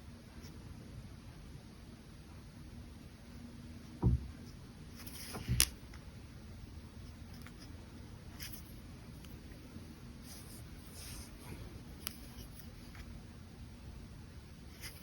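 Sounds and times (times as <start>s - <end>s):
dull knocks: 4.0s - 4.3s
brush pen scratching on paper: 14.7s - 15.0s.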